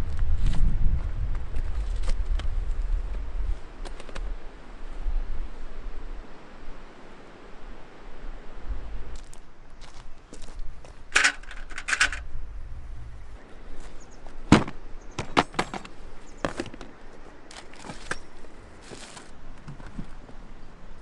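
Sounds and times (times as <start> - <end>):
rustling: 13.7 - 20.4.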